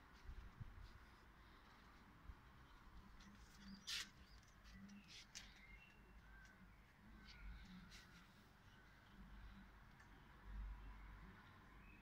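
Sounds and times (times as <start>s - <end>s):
faint bird chirps: 2.6s - 9.8s.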